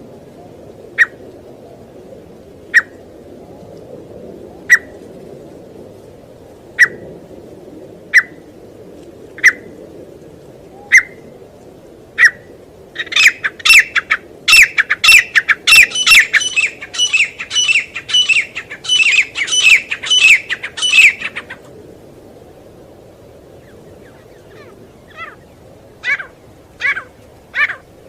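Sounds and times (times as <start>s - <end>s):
low background noise: 0.0s - 28.0s
partridge calling: 13.0s - 21.6s, 24.0s - 25.4s, 26.0s - 27.8s.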